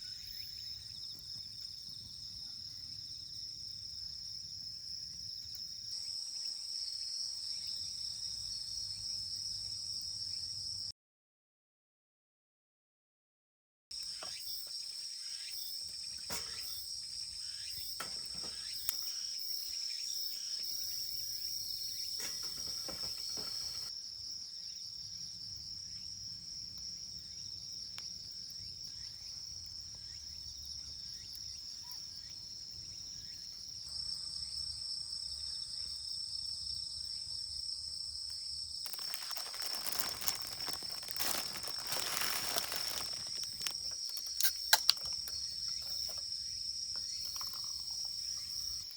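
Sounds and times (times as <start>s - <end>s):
crickets chirping: 0.0s - 10.9s, 14.0s - 48.9s.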